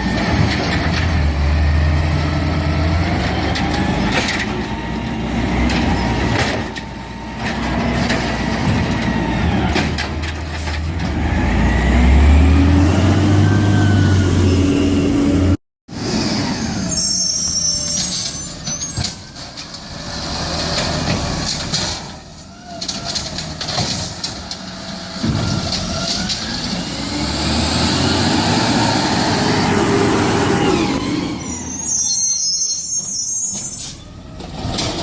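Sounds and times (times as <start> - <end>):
garbage truck running: 0.0 - 35.0
air brakes: 31.0 - 34.2.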